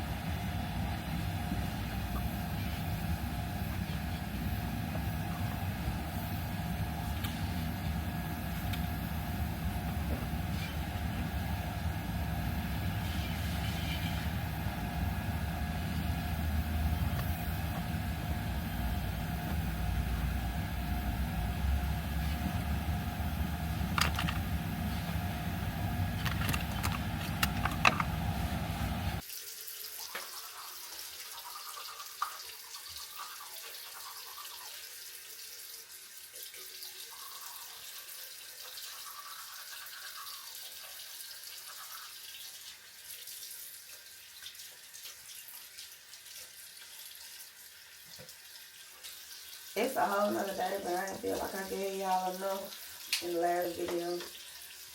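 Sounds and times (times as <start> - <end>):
faucet running into sink: 29.2 - 54.9.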